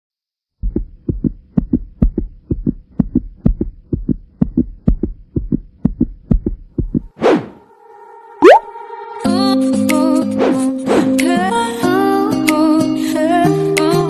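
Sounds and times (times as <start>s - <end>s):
rhythmic deep thumps: 0.6s - 7.2s.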